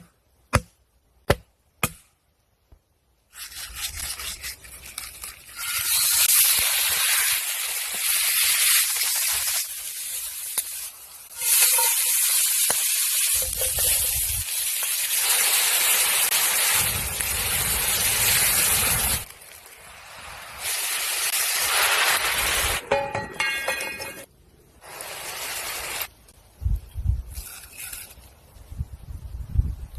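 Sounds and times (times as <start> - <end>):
food sizzling in a hot pan: 5.5 - 22.8, 24.8 - 26.1.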